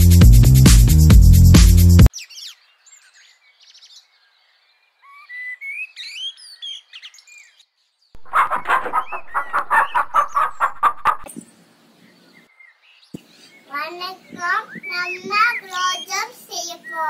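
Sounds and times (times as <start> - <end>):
small birds chirping: 2.1 - 17.0
rapid choppy bird calls: 8.2 - 11.5, 13.1 - 17.0.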